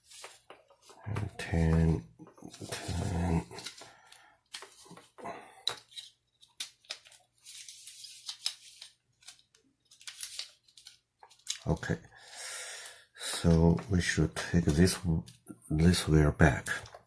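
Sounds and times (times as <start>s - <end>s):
plastic parts rustling: 0.0s - 1.4s, 2.5s - 11.7s
plastic parts clicking: 8.2s - 11.7s.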